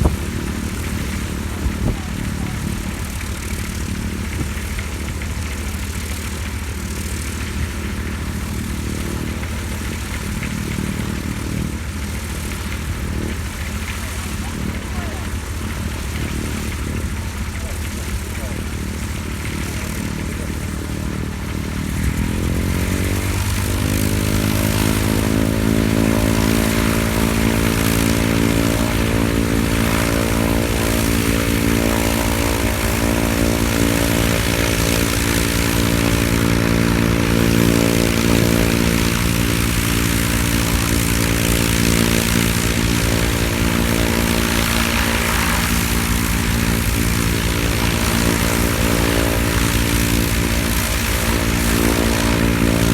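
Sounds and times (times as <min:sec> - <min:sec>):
aircraft engine spooling up: 0:00.0 - 0:52.9.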